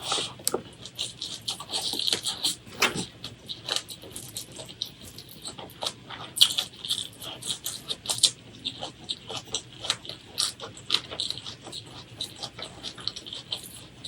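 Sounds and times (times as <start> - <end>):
wet chewing and mouth clicks: 0.0 - 14.0.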